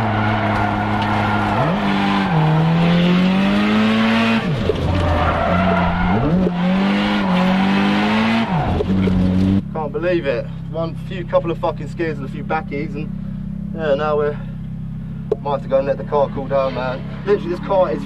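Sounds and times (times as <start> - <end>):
tyres squealing and skidding: 0.0 - 9.5
car engine revving hard: 0.0 - 9.6.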